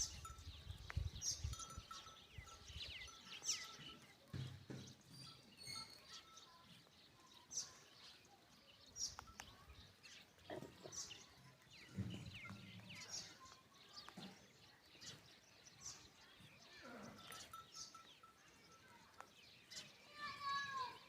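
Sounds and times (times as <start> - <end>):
high bird chirps: 4.6 - 8.2.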